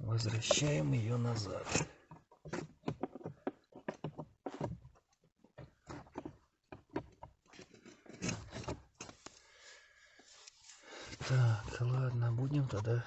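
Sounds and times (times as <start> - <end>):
plastic clicks knocks and rubbing: 0.2 - 9.4.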